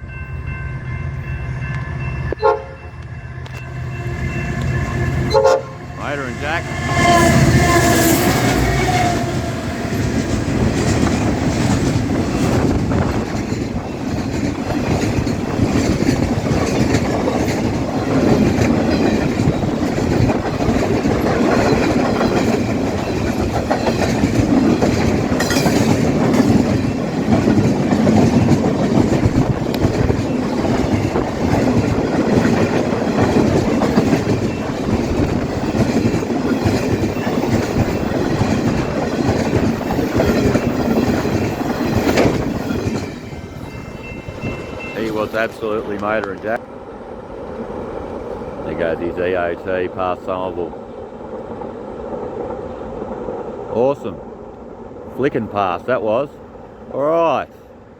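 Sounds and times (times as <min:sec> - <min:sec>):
train wagons rumbling on rails: 0:00.0 - 0:57.4
train horn: 0:01.7 - 0:10.0.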